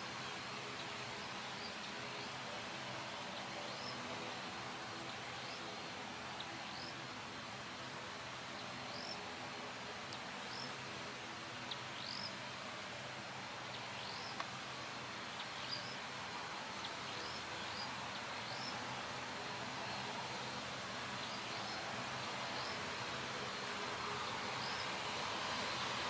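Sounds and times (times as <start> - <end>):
outdoor background noise: 0.0 - 26.0
bird chirping: 15.4 - 16.0.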